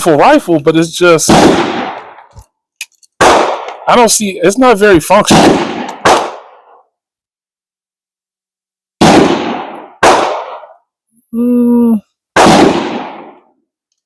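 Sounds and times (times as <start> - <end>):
gunshots with echo: 1.2 - 2.3, 3.2 - 4.1, 5.2 - 6.8, 9.0 - 10.8, 12.4 - 13.5.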